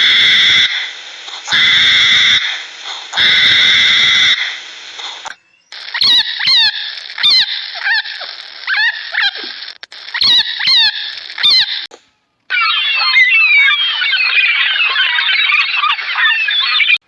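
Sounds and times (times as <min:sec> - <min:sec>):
dense chatter of high calls: 0:00.0 - 0:11.9, 0:12.5 - 0:17.0
background hiss: 0:00.0 - 0:12.4
high hooked animal calls: 0:00.0 - 0:17.0.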